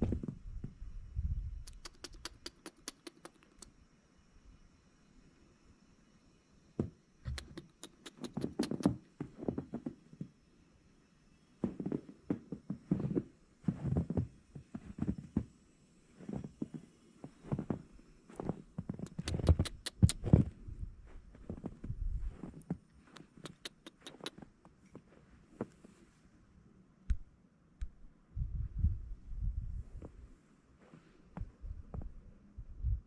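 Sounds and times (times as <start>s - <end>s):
sharp clicks: 1.6s - 3.7s, 7.3s - 9.0s, 19.0s - 20.5s, 23.1s - 24.4s.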